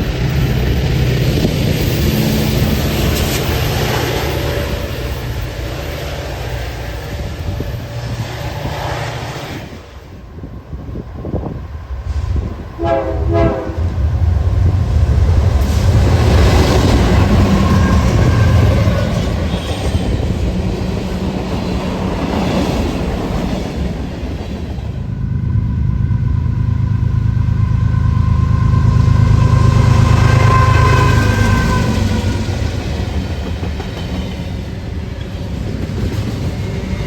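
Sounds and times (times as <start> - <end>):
train wheels clickety-clack: 0.0 - 10.0, 12.1 - 25.1, 28.8 - 37.0
choppy train horn: 12.1 - 14.3, 16.4 - 20.0, 25.2 - 32.9.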